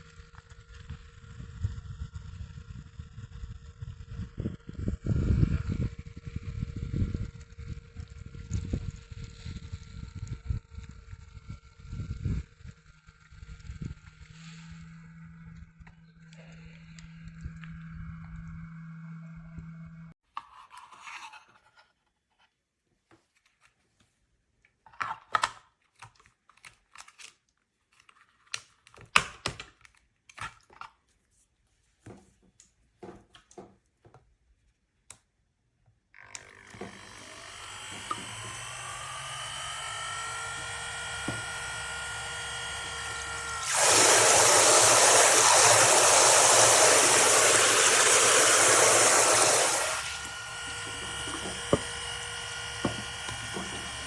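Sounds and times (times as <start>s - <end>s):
battery pump whining: 36.2s - 54.0s
water spraying from shower head: 43.6s - 50.1s.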